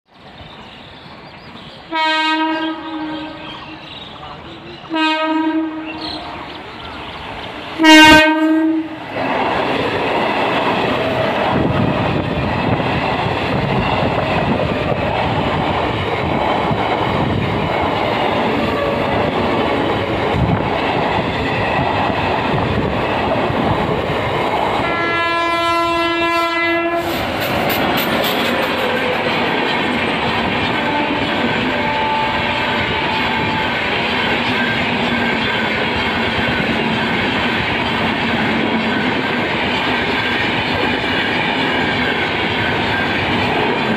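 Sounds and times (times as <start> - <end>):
train rumble and wheel clatter: 0.2 - 43.9
electric train horn: 1.9 - 3.8, 4.9 - 6.4, 7.8 - 9.0, 24.8 - 27.2, 30.6 - 33.9.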